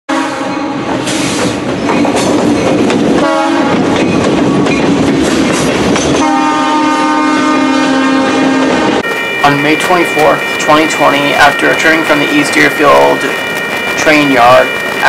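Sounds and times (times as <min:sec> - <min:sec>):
train horn blasts: 0:00.1 - 0:01.4, 0:03.2 - 0:03.9, 0:06.1 - 0:13.7
train wheels clattering on rails: 0:00.4 - 0:06.5, 0:09.0 - 0:15.0.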